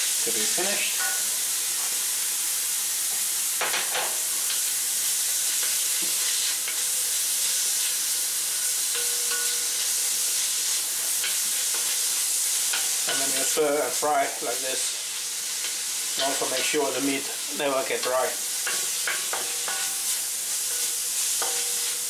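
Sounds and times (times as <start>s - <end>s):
meat sizzling in a wok: 0.0s - 22.0s.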